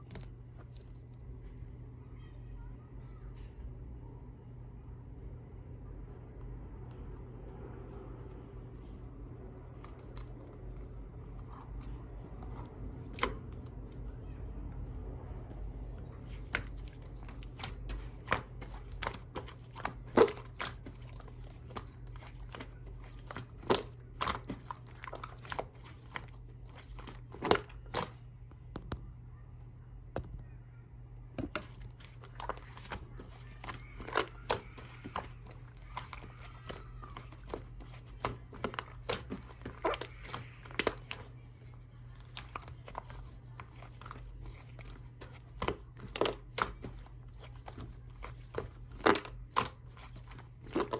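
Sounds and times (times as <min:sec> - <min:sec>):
steady low hum: 0:00.0 - 0:50.9
slime crackling and popping: 0:31.5 - 0:41.3, 0:42.1 - 0:50.9.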